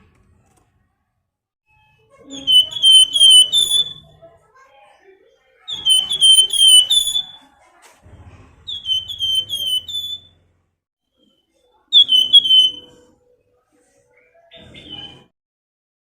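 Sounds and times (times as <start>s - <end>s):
songbird whistled calls: 2.3s - 4.1s, 5.7s - 7.4s, 8.7s - 10.3s, 11.9s - 13.0s.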